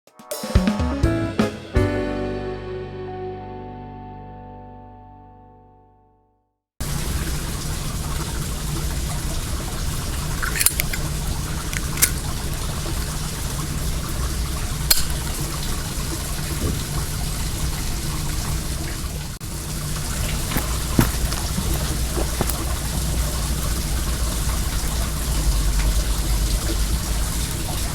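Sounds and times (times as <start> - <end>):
water running in a stream: 6.8 - 27.9
burning wood popping: 20.3 - 23.0.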